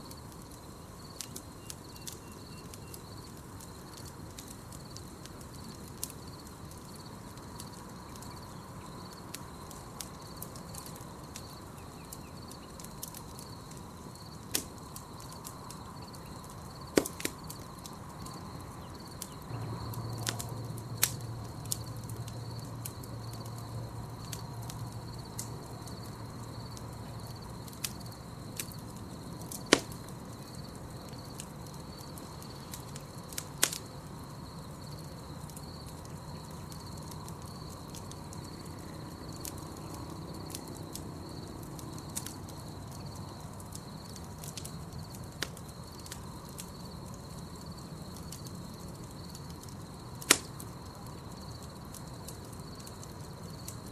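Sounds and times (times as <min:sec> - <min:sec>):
campfire crackling and popping: 0:00.0 - 0:53.9
high insect trill: 0:00.0 - 0:53.9.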